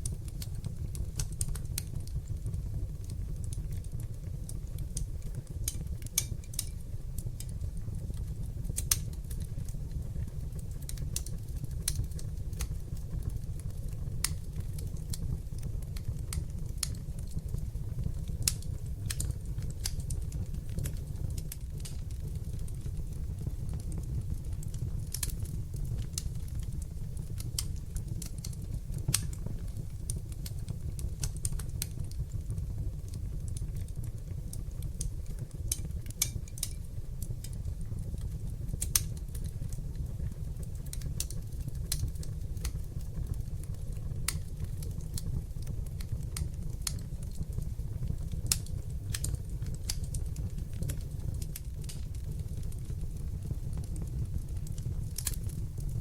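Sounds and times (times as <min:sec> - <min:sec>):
burning logs crackling and popping: 0:00.0 - 0:56.0
low rumble of flames: 0:00.0 - 0:56.0.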